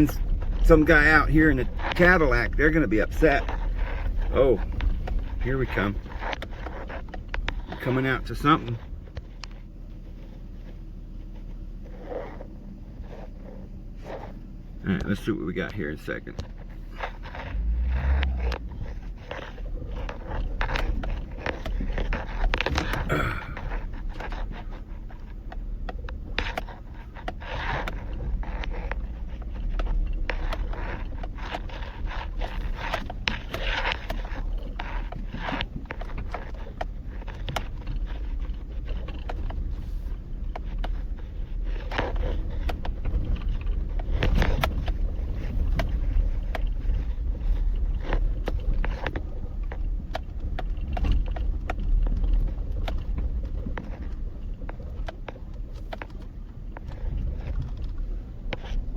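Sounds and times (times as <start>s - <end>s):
truck rumbling on dirt track: 0.0s - 58.9s
tyres and body scraping: 0.0s - 58.9s.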